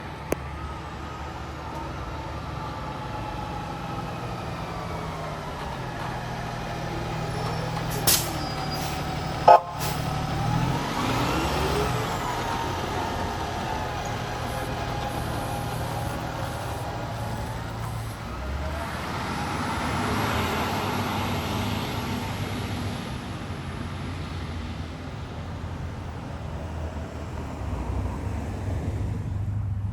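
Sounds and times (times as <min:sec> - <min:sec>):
fire engine running: 0:00.0 - 0:29.9
air brake hiss: 0:08.0 - 0:10.1
siren rising and falling: 0:09.1 - 0:14.2.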